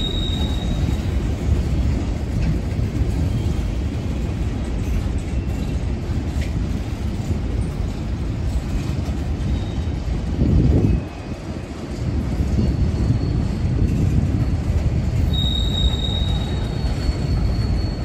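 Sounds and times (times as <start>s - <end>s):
wheel squeals: 0.0s - 1.3s, 9.4s - 10.1s, 12.4s - 18.0s
freight train wheels rumbling: 0.0s - 18.0s.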